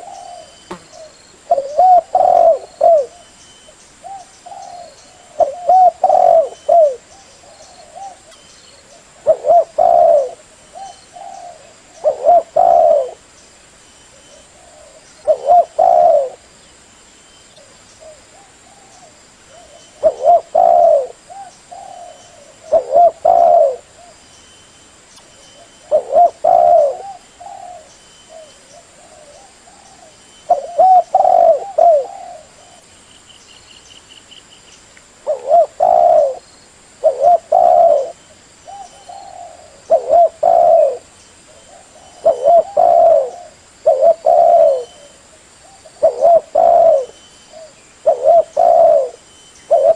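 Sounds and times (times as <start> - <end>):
dove cooing: 0.0 - 3.3, 4.0 - 13.2, 14.1 - 16.5, 17.6 - 24.2, 25.6 - 32.9, 35.2 - 36.4, 37.0 - 49.9.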